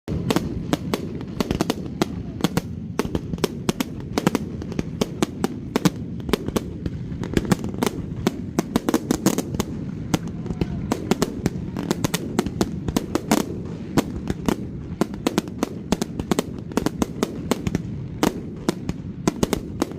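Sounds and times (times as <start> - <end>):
fireworks bangs and cracks: 0.1 - 19.9.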